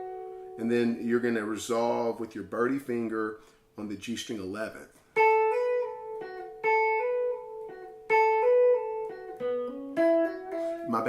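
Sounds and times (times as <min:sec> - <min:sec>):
guitar lick with hammer-ons: 0:00.0 - 0:01.0, 0:05.0 - 0:11.0.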